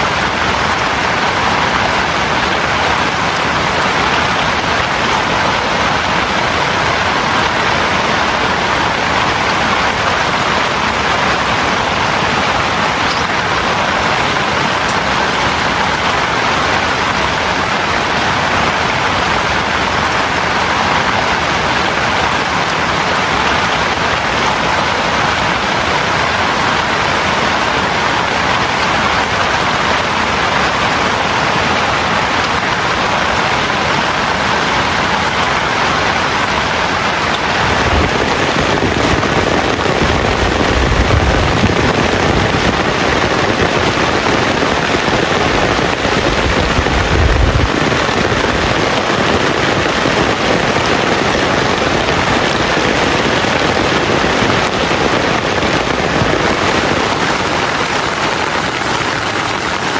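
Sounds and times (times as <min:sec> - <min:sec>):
heavy rain falling: 0:00.0 - 0:59.9
low rumbles: 0:45.0 - 0:48.9.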